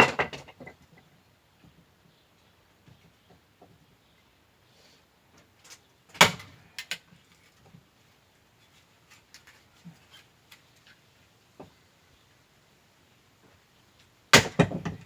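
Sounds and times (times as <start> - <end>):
axe striking wood: 6.2 - 6.6, 14.3 - 15.0.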